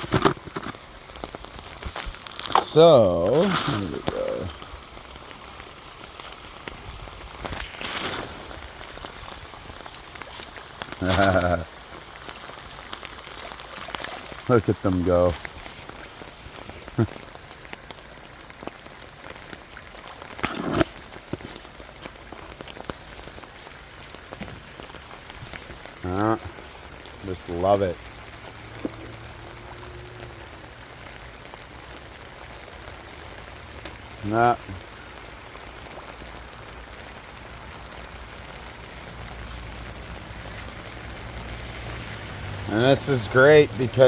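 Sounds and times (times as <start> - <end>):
rain pattering: 0.0 - 44.0.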